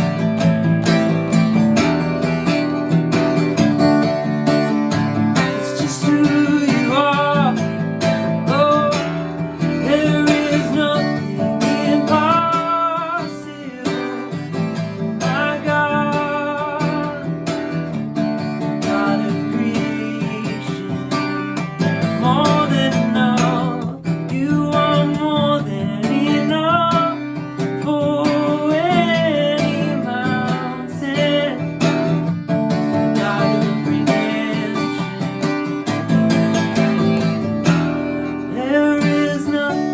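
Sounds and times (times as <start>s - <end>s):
man singing: 0.0s - 39.9s
strummed acoustic guitar: 0.0s - 39.9s.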